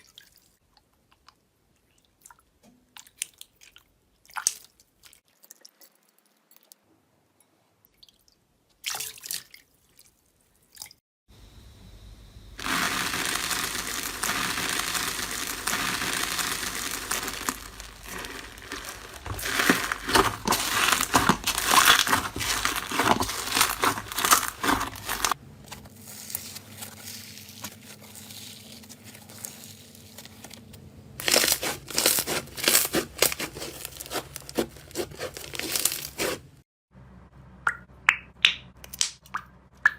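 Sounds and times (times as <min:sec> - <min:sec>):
slime crackling and popping: 0:12.6 - 0:25.4, 0:31.2 - 0:36.4.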